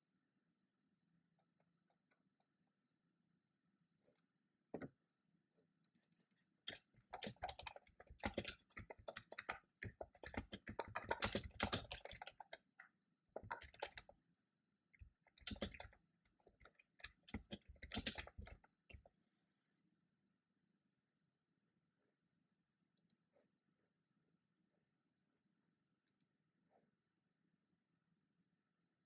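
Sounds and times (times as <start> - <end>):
typing on computer keyboard: 5.9 - 14.2, 15.0 - 19.1.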